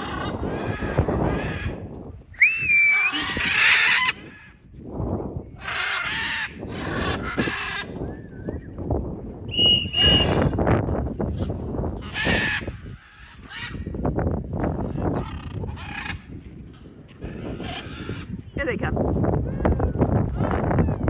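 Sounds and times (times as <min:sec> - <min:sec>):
wind rumble on microphone: 0:00.0 - 0:21.0
short whistled notes: 0:02.4 - 0:03.2, 0:09.5 - 0:10.4
parrots screeching: 0:02.4 - 0:04.2.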